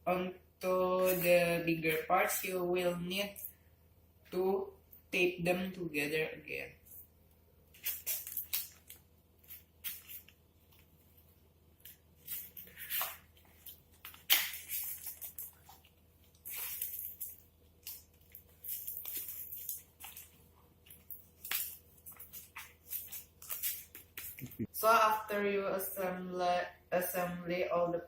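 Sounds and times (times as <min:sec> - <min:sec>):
adhesive tape pulled and torn: 0:07.8 - 0:10.4, 0:11.8 - 0:15.8, 0:21.0 - 0:24.5.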